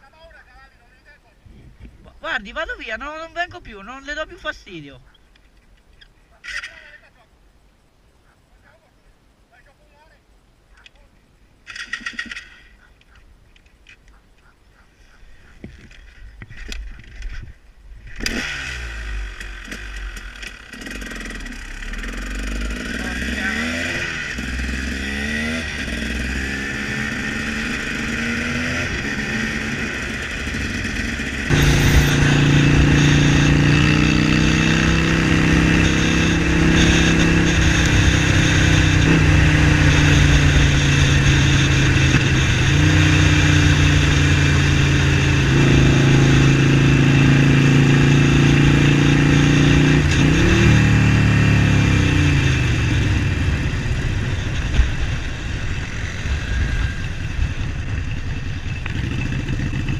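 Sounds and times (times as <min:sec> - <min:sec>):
motorcycle engine revving: 0:18.1 - 0:59.9.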